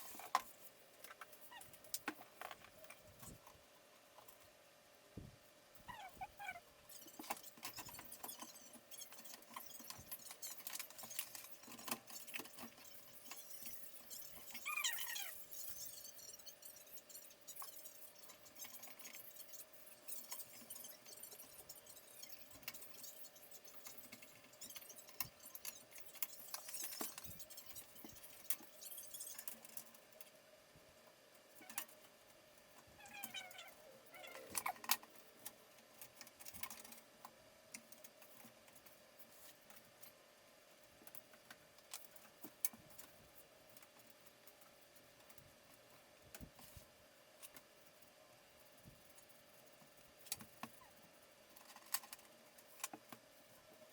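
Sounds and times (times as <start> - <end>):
squeaky rub: 5.9 - 29.5
hard parts clicking and rattling: 6.9 - 30.0.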